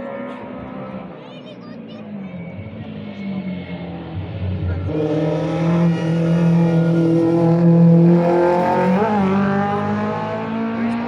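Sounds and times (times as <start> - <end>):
rally car engine running hard: 2.2 - 11.0.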